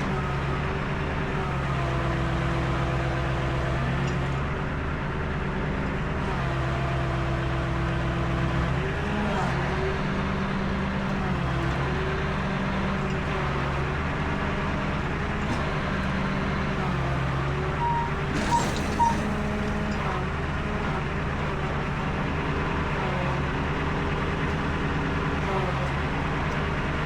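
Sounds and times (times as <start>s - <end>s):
tow truck engine running: 0.0s - 27.0s
short high beeps: 17.8s - 19.6s.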